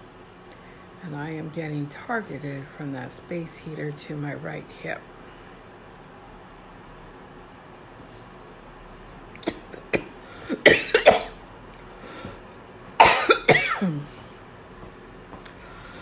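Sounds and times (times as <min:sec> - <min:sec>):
person coughing: 0:09.4 - 0:11.4, 0:13.0 - 0:14.2.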